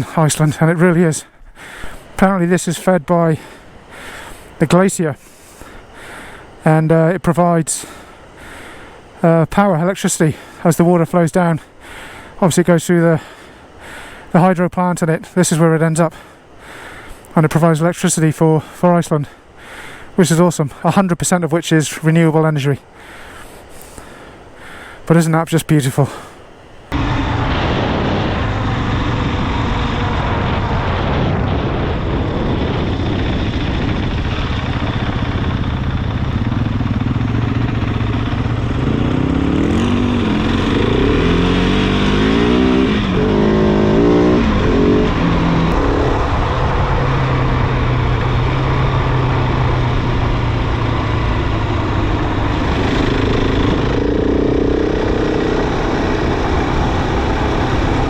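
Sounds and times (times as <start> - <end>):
rush of wind noise: 26.6 - 58.0
motorcycle engine revving: 26.9 - 58.0.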